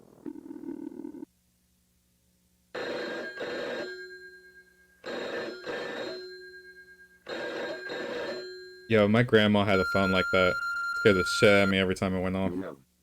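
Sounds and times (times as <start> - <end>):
landline telephone ringing: 2.8 - 11.9.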